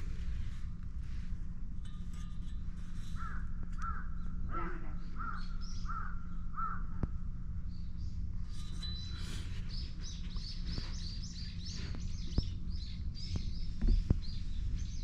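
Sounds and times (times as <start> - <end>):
low hum: 0.0 - 15.0
bird calling: 3.2 - 7.2.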